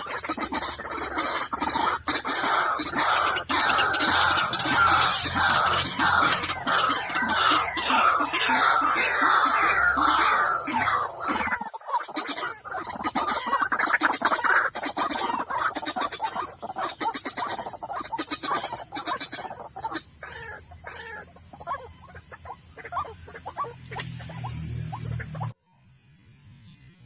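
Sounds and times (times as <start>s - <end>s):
waterhen calling harshly: 0.0s - 21.2s.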